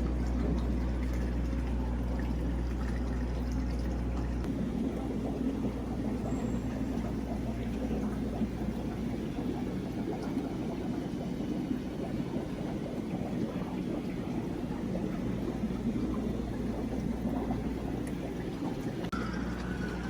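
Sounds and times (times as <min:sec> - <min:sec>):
low pump hum: 0:00.0 - 0:20.0
running water: 0:00.0 - 0:20.0.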